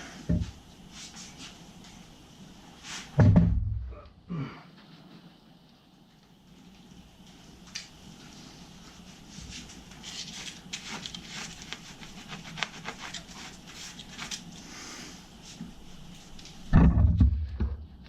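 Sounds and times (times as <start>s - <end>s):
solder crackling and sizzling: 6.1s - 16.8s.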